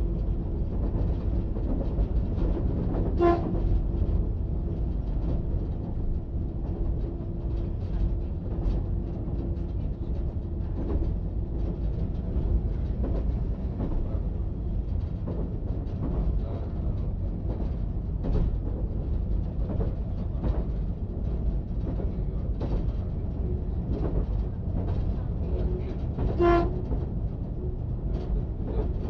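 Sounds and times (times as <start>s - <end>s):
train rumbling at speed: 0.0s - 29.0s.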